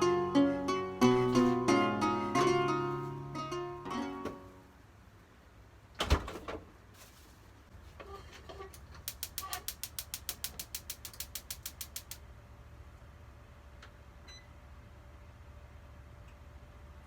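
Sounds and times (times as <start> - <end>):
rapid mechanical clicks: 8.8 - 12.2.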